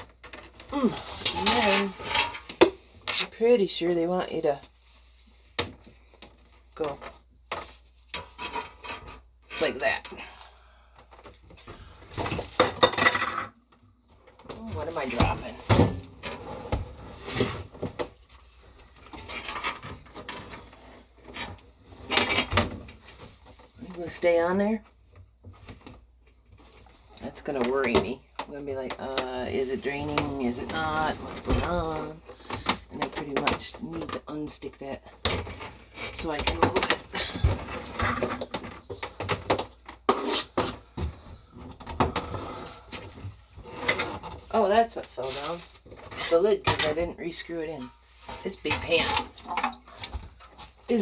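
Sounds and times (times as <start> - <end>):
items clattering on kitchen counter: 1.2 - 2.8, 12.2 - 13.6.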